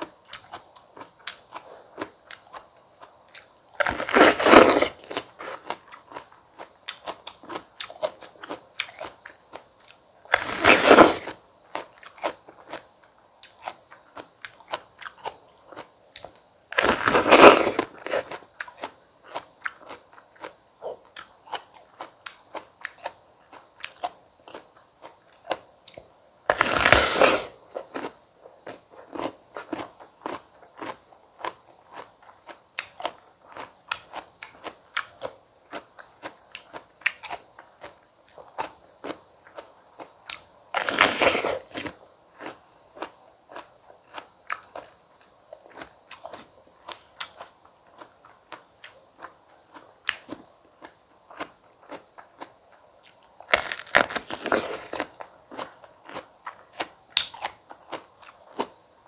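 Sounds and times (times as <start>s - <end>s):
crunching bites into fruit: 3.4s - 9.6s, 10.3s - 12.8s, 13.4s - 23.2s, 25.4s - 39.2s, 40.3s - 44.9s, 53.1s - 58.7s.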